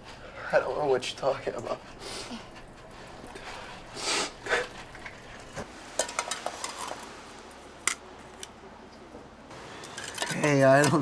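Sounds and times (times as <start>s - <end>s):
small objects clattering: 9.8s - 11.0s.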